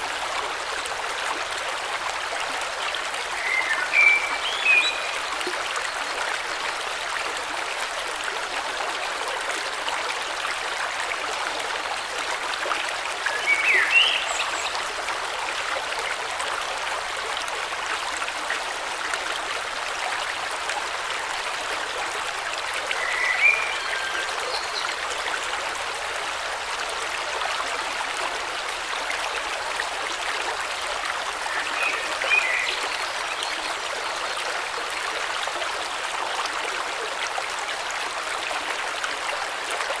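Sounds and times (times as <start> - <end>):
river water flowing: 0.0 - 40.0.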